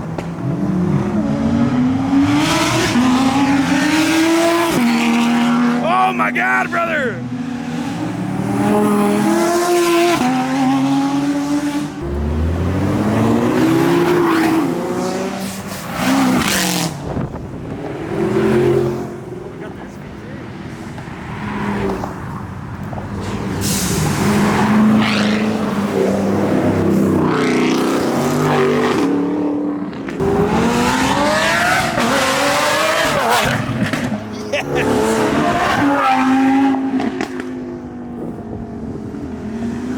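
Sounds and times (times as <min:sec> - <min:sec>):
car engines accelerating: 0:00.0 - 0:39.9.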